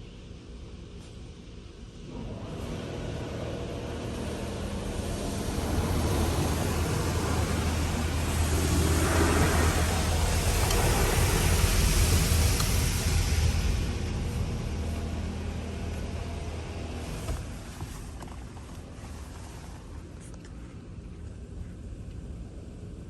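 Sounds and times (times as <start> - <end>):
low motor hum: 1.8 - 23.0
car wash machinery rushing: 2.1 - 20.3.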